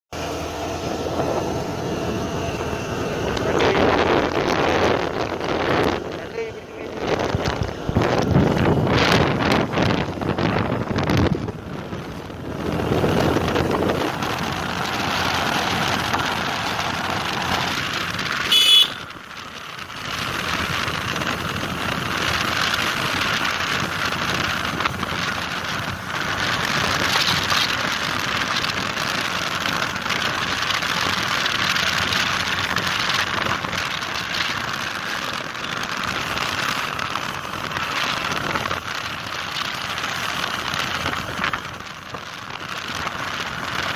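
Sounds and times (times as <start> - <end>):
wind and road noise: 0.1 - 43.9
scooter horn beep: 18.4 - 19.1.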